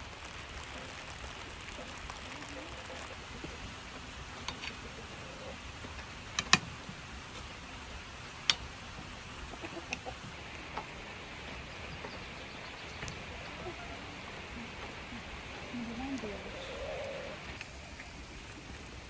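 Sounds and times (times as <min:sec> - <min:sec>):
background hush: 0:00.0 - 0:19.0
hens clucking: 0:01.6 - 0:18.2.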